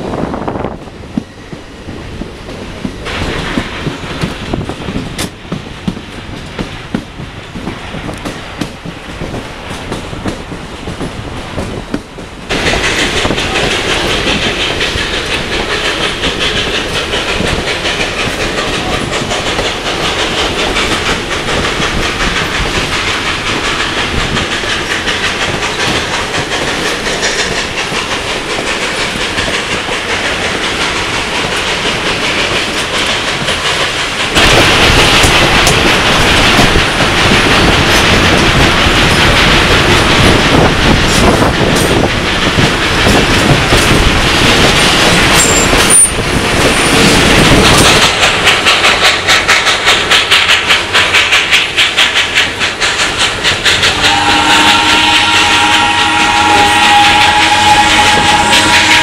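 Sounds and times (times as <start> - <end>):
train running noise: 0.0 - 59.0
wheels clicking over rail joints: 2.4 - 59.0.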